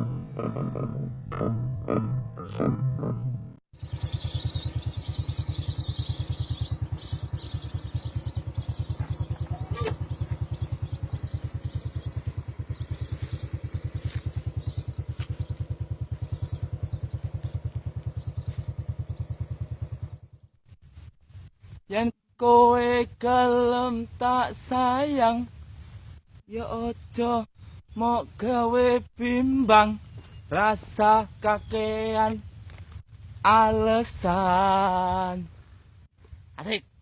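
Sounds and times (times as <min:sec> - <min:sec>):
small engine idling: 0:03.7 - 0:20.6.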